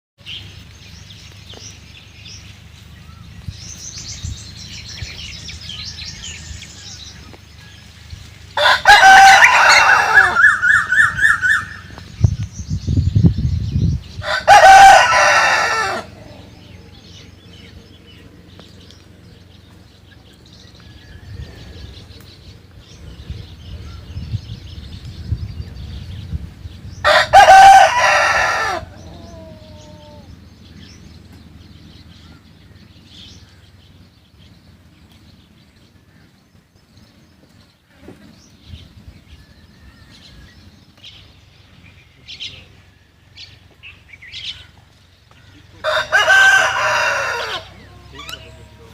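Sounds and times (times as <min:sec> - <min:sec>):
rooster crowing: 0:08.6 - 0:11.8, 0:14.2 - 0:16.7, 0:27.0 - 0:30.3, 0:45.8 - 0:48.9.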